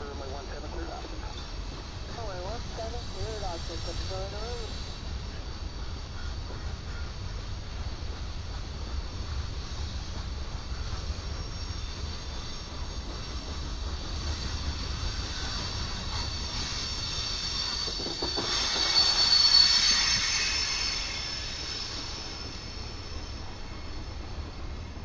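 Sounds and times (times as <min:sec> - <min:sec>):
freight train rumbling on rails: 0:00.0 - 0:25.0
metallic wheel squeal: 0:10.7 - 0:24.5.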